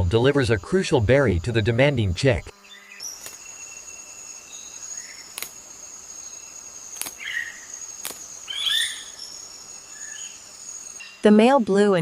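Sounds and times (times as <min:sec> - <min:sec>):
insect drone: 0:00.0 - 0:12.0
sharp clicks: 0:05.3 - 0:05.6, 0:06.9 - 0:07.3, 0:08.0 - 0:08.3.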